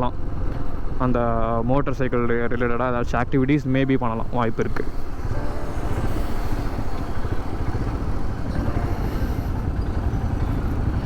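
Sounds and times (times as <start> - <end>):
wind and road noise: 0.0 - 11.0
motorcycle engine running: 3.9 - 11.0.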